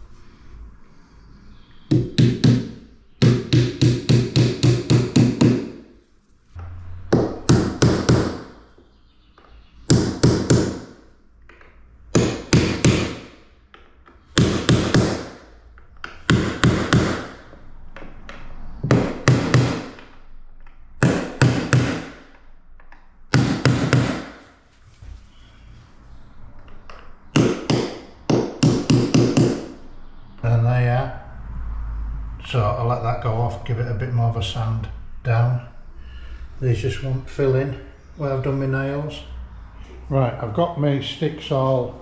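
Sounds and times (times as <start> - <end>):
hammer tapping nails into wood: 1.9 - 5.8, 9.9 - 10.9, 12.2 - 15.4, 16.0 - 17.4, 18.3 - 20.2, 21.0 - 22.4, 23.3 - 24.4, 26.9 - 29.6.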